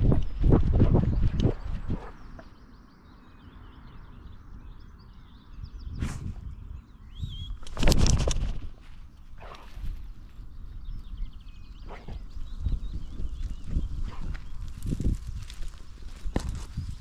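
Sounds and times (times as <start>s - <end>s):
birds chirping: 0.0s - 17.0s
crunching footsteps: 7.6s - 10.8s, 11.9s - 17.0s
dog's paws crunching on trail: 7.6s - 17.0s.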